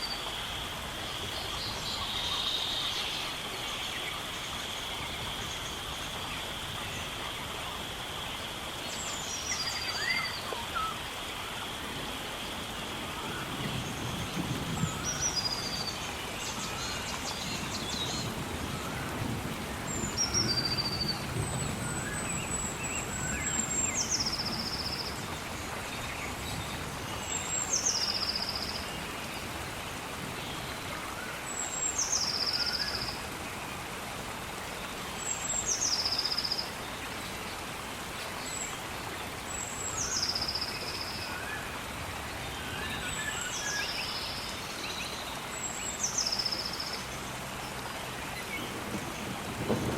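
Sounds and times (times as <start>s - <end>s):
gentle rain: 0.0s - 49.9s
songbird singing trilling song: 9.4s - 11.0s.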